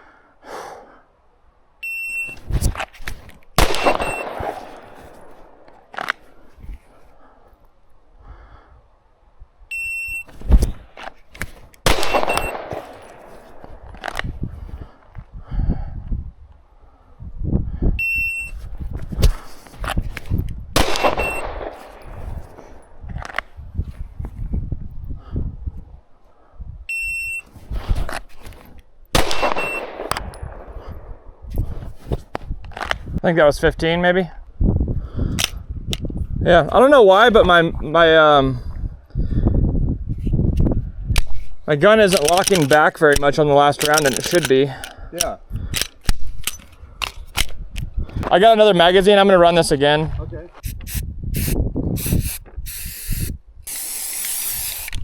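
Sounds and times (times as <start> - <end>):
clicks and knocks of pistol draw: 2.4 - 6.9, 10.3 - 14.4, 19.0 - 23.5, 32.1 - 33.1, 35.4 - 36.1, 41.1 - 48.3
sharp crack: 2.6 - 6.2, 11.4 - 14.3, 20.8 - 22.2
loud pistol shot echoing: 3.6 - 5.6, 11.8 - 13.2, 20.8 - 22.0, 29.2 - 31.2
shot timer beep: 3.8 - 4.4, 12.2 - 12.6, 21.0 - 21.5, 29.5 - 29.9.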